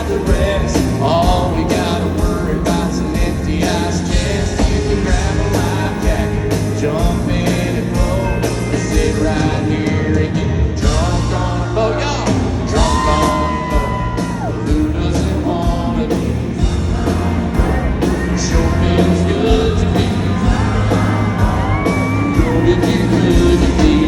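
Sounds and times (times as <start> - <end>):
live country band playing: 0.0 - 24.0
person singing: 0.0 - 24.0
crowd whooping: 12.2 - 15.4, 16.8 - 24.0.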